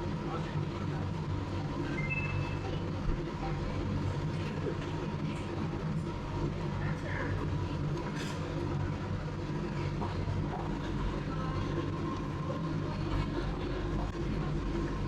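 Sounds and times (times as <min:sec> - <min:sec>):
low machine hum and rumble: 0:00.0 - 0:15.0
high two-note electronic tone: 0:02.0 - 0:02.6.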